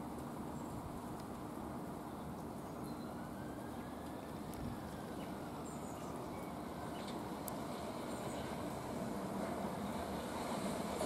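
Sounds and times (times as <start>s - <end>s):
train approaching rumble: 3.0s - 11.0s.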